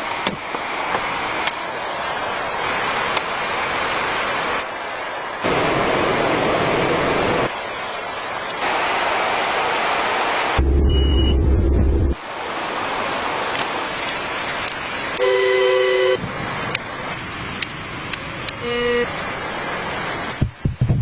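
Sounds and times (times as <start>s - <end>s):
steady noisy background: 0.0s - 21.0s
heavy low rumble: 10.6s - 12.2s.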